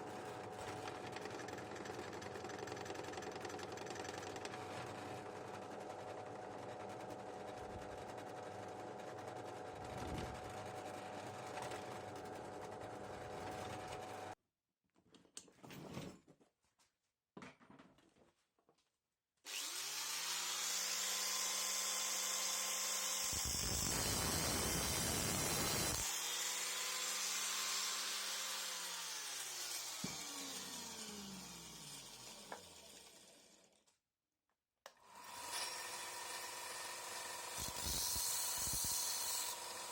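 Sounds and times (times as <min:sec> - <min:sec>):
power tool motor cutting: 0:19.5 - 0:33.4, 0:35.0 - 0:39.9.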